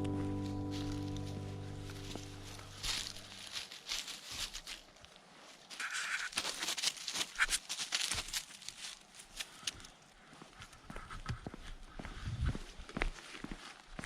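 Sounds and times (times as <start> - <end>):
background music: 0.0 - 3.5
footsteps scuffing on ground: 0.0 - 14.0.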